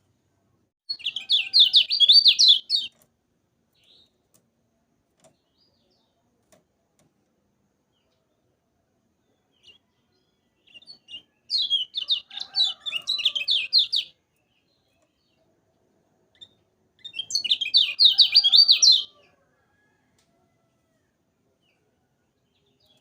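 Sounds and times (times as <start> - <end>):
songbird scratchy chirping: 0.9 - 3.0, 3.7 - 4.3, 9.2 - 15.5, 16.3 - 19.3.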